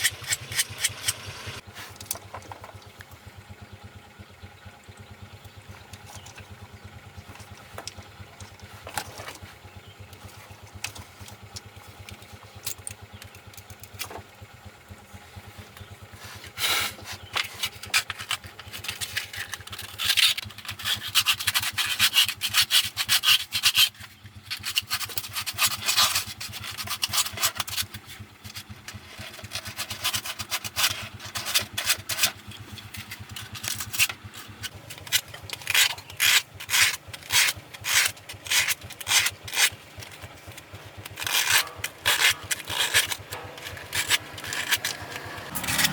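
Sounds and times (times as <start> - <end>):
hand tool scraping: 0.0 - 2.1, 15.8 - 45.9
engine idling: 0.0 - 45.9.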